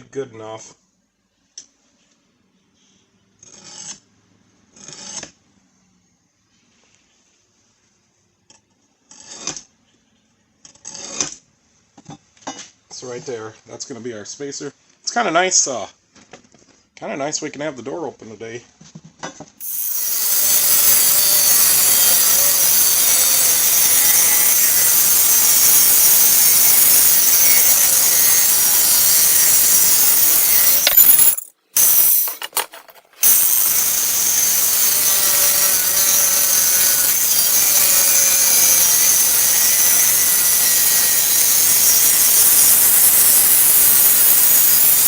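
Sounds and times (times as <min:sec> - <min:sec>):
power tool cutting steel: 0:19.6 - 0:45.0.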